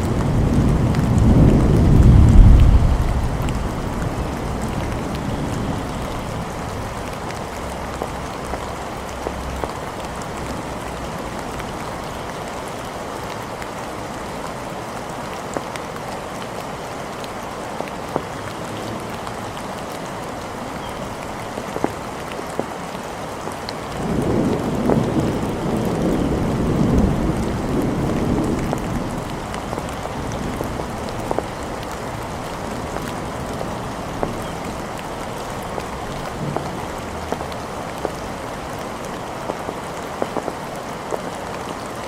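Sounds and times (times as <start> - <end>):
thunder rumbling: 0.0 - 7.8, 24.0 - 39.6
steady rain falling: 0.0 - 42.0.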